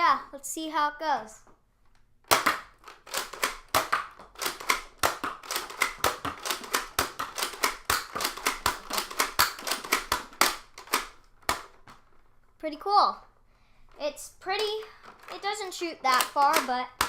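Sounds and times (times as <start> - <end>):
toy blaster plastic clicks: 2.3 - 11.8, 14.6 - 17.0.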